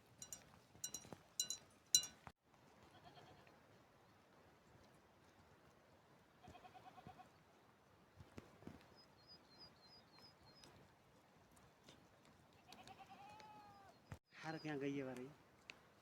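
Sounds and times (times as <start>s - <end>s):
metal livestock bells clinking: 0.0s - 2.3s
sheep bleating: 6.4s - 7.2s, 12.7s - 14.0s.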